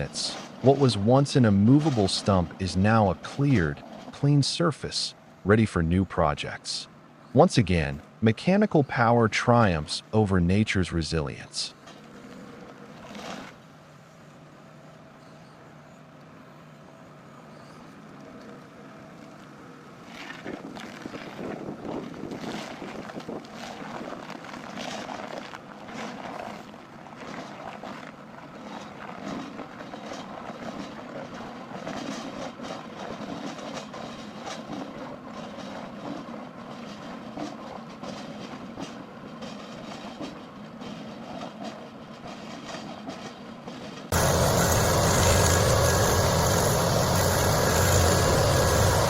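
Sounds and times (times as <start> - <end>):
heavy machinery engine running: 44.1 - 49.0.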